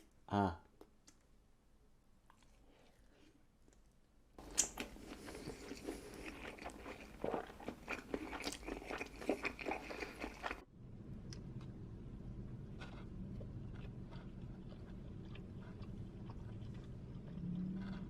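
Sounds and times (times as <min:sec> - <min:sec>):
person chewing crunchy food: 0:04.4 - 0:10.7, 0:12.6 - 0:18.0.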